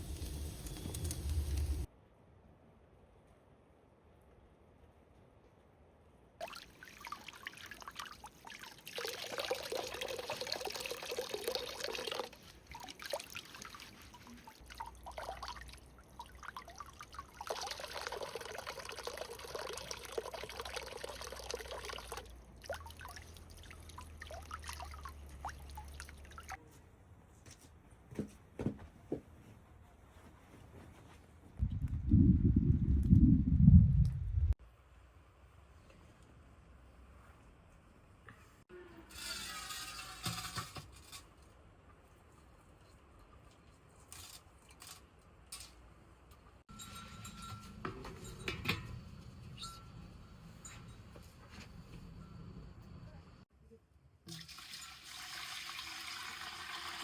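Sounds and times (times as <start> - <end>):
water pouring: 6.4 - 26.6, 54.3 - 57.0
water trickling and dripping: 6.4 - 26.6.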